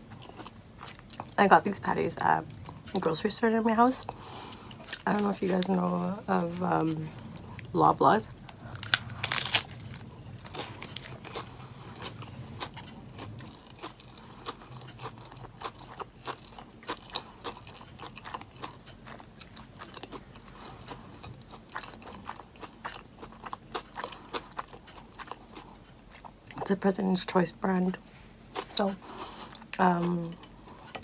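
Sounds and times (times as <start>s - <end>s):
biting into a burger: 8.7s - 18.8s
chewing with small clicks: 10.5s - 26.7s, 28.6s - 31.0s.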